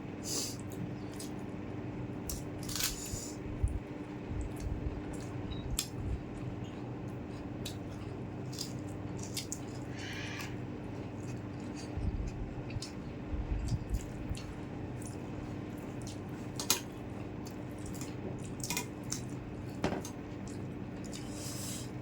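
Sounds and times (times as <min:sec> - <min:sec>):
faint background hum: 0:00.0 - 0:22.0
wet chewing and mouth sounds: 0:00.5 - 0:01.5, 0:02.2 - 0:22.0.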